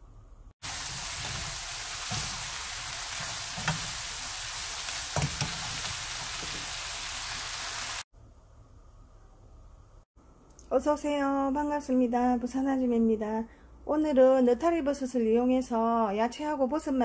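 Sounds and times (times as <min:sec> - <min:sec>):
vegetables sizzling in a frying pan: 0:00.6 - 0:08.1
utensil knocking against pan: 0:03.2 - 0:04.0, 0:05.1 - 0:06.7.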